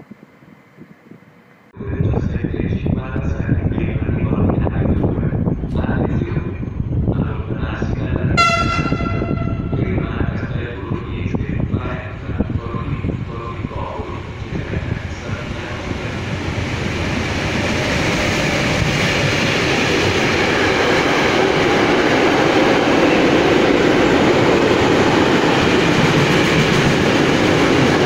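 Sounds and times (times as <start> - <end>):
electric locomotive rumble: 0.0 - 28.0
train wheels on rails: 13.2 - 28.0.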